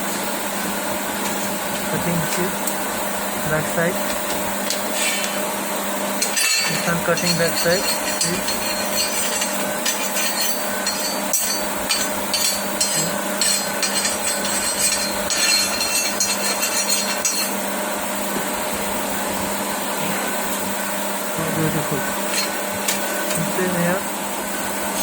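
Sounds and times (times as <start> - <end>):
machine hum: 0.0 - 25.0
steel pieces scraping and clattering: 6.2 - 17.6, 22.2 - 23.0.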